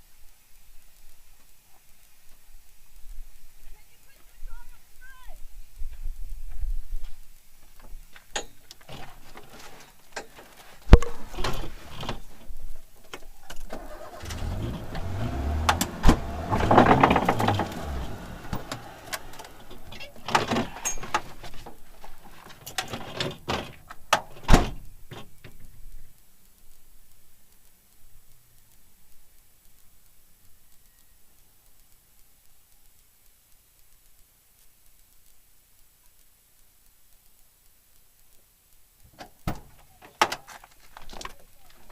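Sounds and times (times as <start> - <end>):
car engine: 13.7 - 21.2
sharp knocks and clunks: 15.6 - 21.6.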